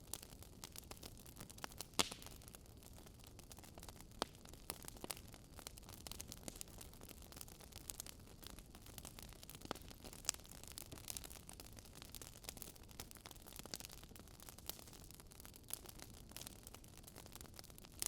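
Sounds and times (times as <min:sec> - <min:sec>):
burning logs crackling and popping: 0:00.0 - 0:18.0.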